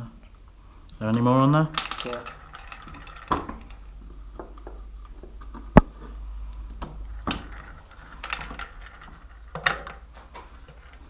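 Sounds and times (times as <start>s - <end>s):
metal ball bearings clicking: 1.7s - 5.8s, 6.9s - 11.0s.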